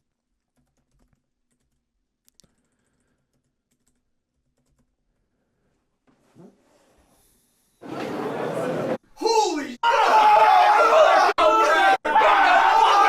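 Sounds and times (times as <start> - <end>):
keyboard typing and clicking: 0.0 - 5.1.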